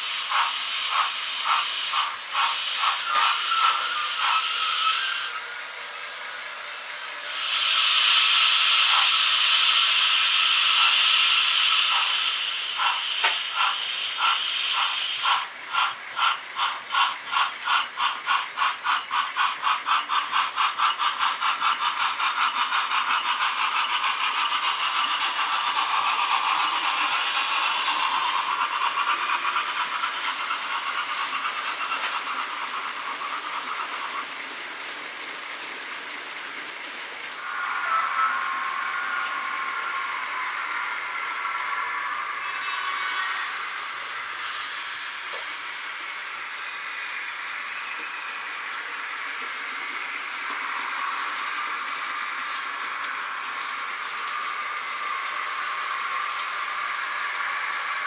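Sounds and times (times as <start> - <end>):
model locomotive exhaust chuffs: 0.0 - 35.7
steam hiss from small speaker: 0.0 - 36.6, 37.3 - 58.0.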